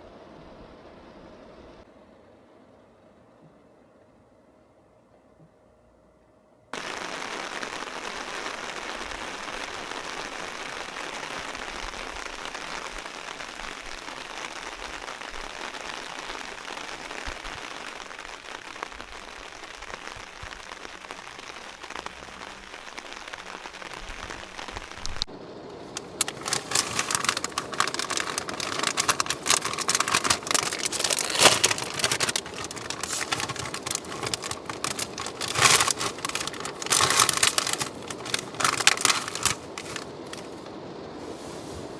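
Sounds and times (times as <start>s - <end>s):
heavy rain falling: 6.8s - 41.9s.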